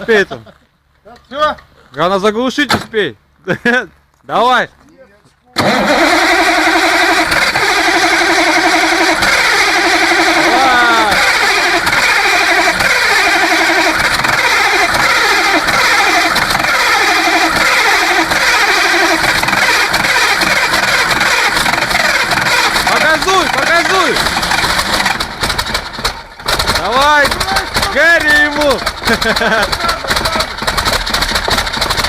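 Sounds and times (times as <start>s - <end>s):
engine running with wavering note: 5.6s - 32.0s.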